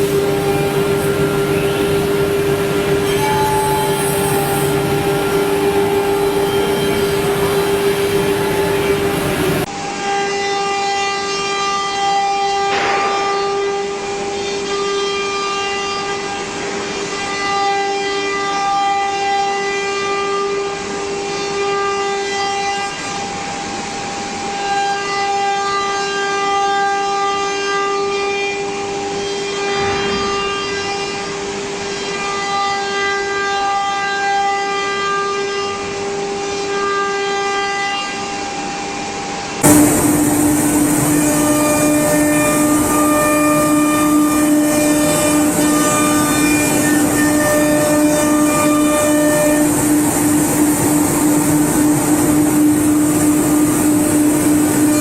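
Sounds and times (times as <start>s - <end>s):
cnc router spindle whining: 0.0s - 12.7s, 30.5s - 55.0s.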